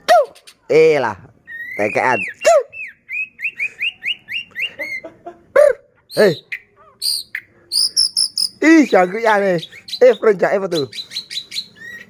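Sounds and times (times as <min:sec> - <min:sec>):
bird chirping: 0:00.0 - 0:12.0
bird whistling high notes: 0:07.0 - 0:12.0.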